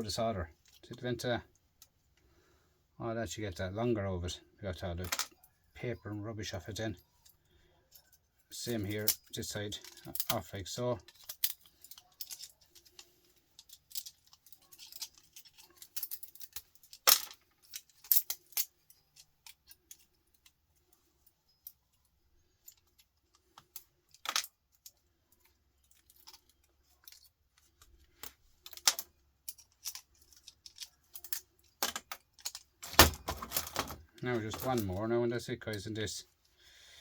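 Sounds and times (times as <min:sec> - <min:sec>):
hand tools clicking and knocking: 0:26.1 - 0:34.9.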